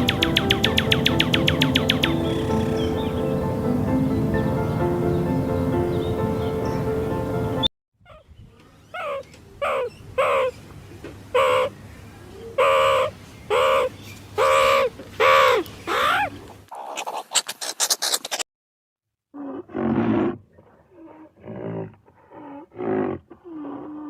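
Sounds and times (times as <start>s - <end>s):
bird calling: 0.0s - 3.7s
music: 0.0s - 7.7s.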